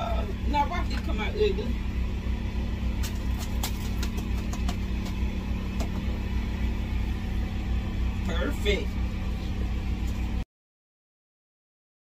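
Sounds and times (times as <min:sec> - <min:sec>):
low motor hum: 0:00.0 - 0:10.4.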